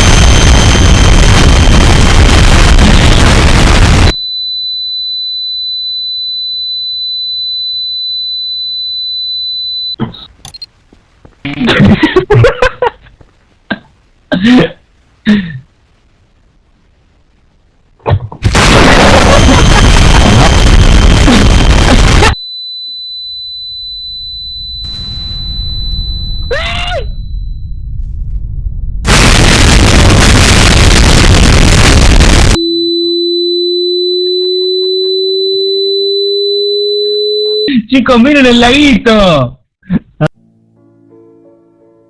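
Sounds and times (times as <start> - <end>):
loud distorted blast of noise: 0.0 - 4.1, 18.4 - 22.4, 24.7 - 32.6
steady pure ringing tone: 4.1 - 10.7, 22.4 - 29.3, 32.6 - 37.7.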